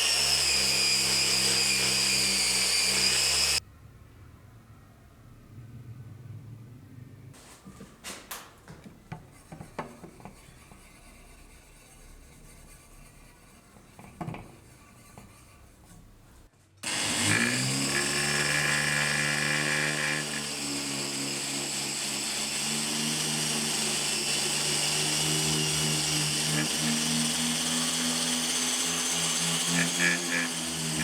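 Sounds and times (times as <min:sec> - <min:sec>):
power tool motor running: 0:00.0 - 0:03.6, 0:16.8 - 0:31.0
handling sounds: 0:07.4 - 0:09.4.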